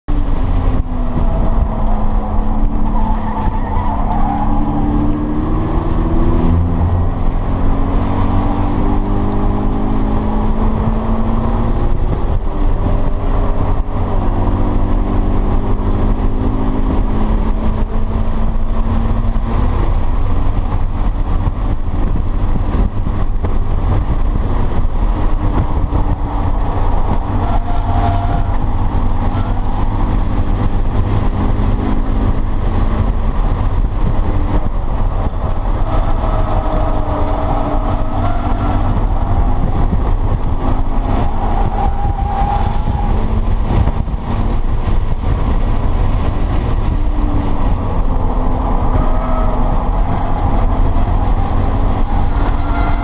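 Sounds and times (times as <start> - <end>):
car engine accelerating: 0.0 - 53.0
road and wind rumble: 0.0 - 53.0
tyre squeal: 52.0 - 53.0.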